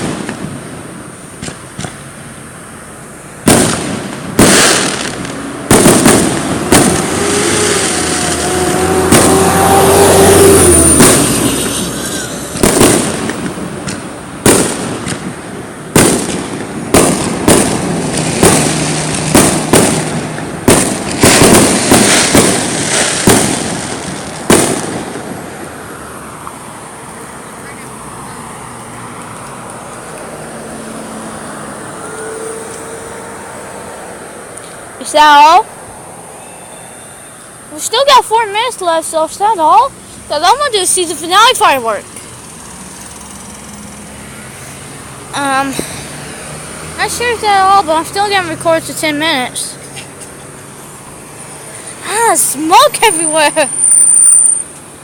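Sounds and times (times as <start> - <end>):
fireworks bangs: 0.0 - 2.1, 3.4 - 26.0
fireworks crackling: 0.0 - 2.4, 3.4 - 30.4, 34.6 - 35.9, 36.6 - 55.0.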